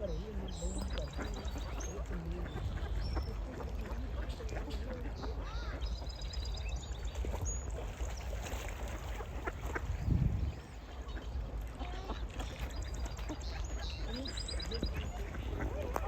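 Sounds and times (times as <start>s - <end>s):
ducks quacking: 0.0s - 5.9s, 8.8s - 16.0s
wind rumble on microphone: 0.6s - 3.8s, 9.3s - 11.5s, 14.1s - 16.0s.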